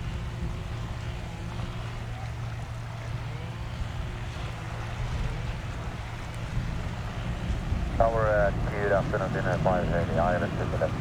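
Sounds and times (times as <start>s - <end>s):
distant jet engines rumbling: 4.8s - 11.0s.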